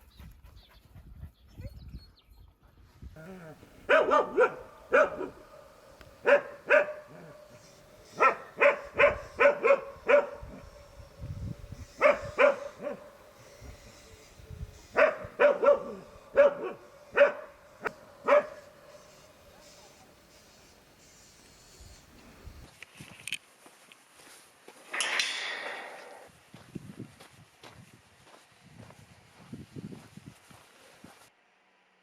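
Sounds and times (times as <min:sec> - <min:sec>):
dog barking: 0:03.4 - 0:11.2, 0:11.9 - 0:13.4, 0:14.8 - 0:20.1.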